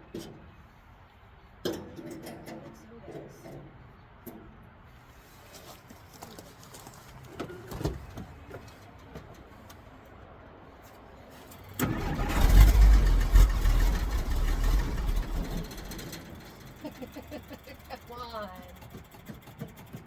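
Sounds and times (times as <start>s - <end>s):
engine cranking: 11.5s - 20.0s.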